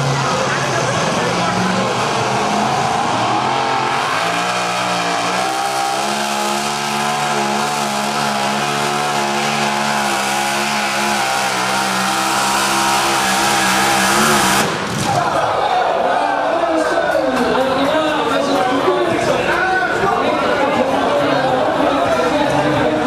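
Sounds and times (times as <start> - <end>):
vehicle engine running at high revs: 0.0 - 15.0.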